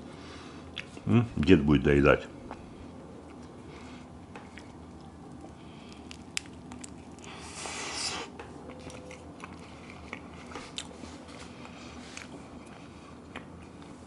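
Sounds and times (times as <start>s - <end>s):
person biting and chewing: 4.4s - 11.3s.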